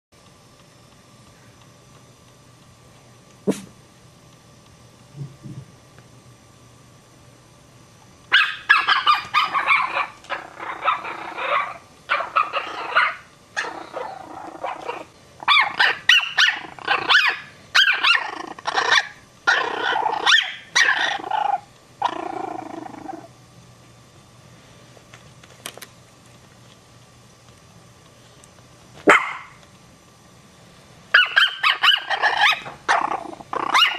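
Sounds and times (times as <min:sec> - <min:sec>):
small dogs barking: 0:08.3 - 0:22.3, 0:29.0 - 0:29.6, 0:31.1 - 0:33.9
dog growling: 0:09.8 - 0:11.8, 0:13.6 - 0:15.6, 0:16.5 - 0:17.2, 0:18.0 - 0:23.3, 0:32.1 - 0:33.9.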